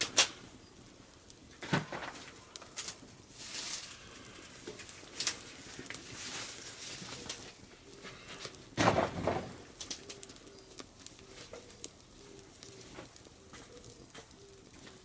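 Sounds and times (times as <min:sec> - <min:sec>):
pigeon cooing: 0:06.9 - 0:08.5, 0:09.9 - 0:15.0.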